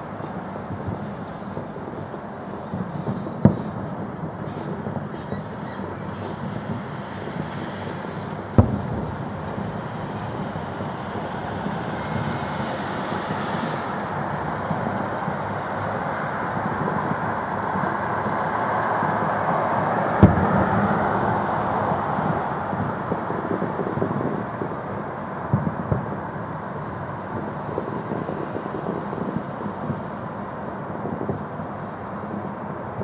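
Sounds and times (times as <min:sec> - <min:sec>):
fireworks display noise: 0:00.0 - 0:33.0
sharp firework bang: 0:00.4 - 0:17.3, 0:20.0 - 0:26.2.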